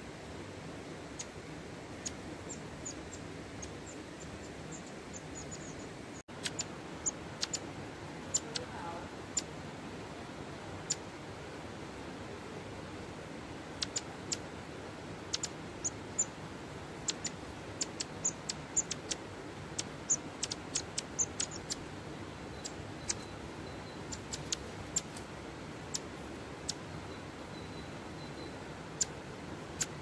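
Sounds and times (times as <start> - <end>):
steady hiss: 0.0 - 30.0
bird ticking calls: 2.0 - 9.5, 13.8 - 14.5, 15.3 - 16.4, 17.0 - 25.2, 25.8 - 30.0.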